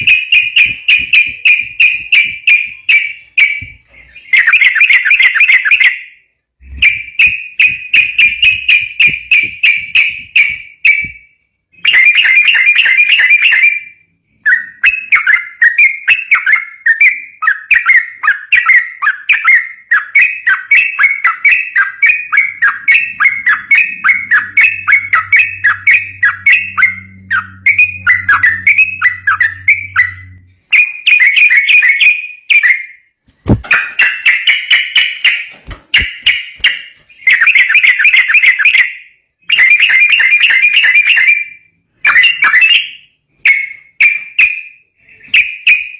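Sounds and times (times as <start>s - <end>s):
bird chattering song: 11.8s - 13.9s, 14.5s - 32.9s.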